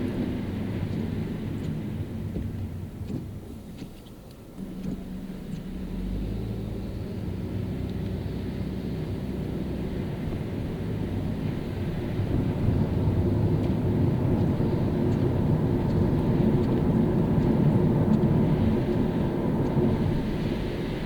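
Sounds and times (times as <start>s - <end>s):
car driving on wet road: 0.0s - 21.0s.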